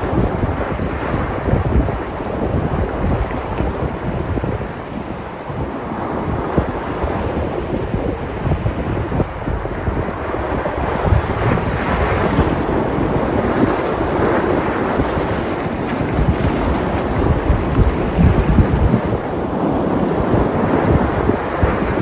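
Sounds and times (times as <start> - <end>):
waves breaking on shore: 0.0 - 22.0
wind rumbling on microphone: 0.0 - 22.0.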